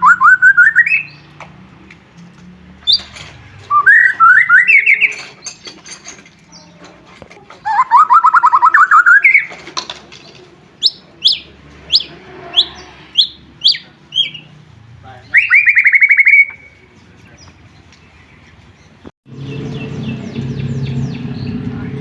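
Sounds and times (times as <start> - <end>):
bird singing trills and whistles: 0.0 - 1.4, 2.9 - 5.7, 7.6 - 9.6, 10.8 - 14.6, 15.2 - 21.7.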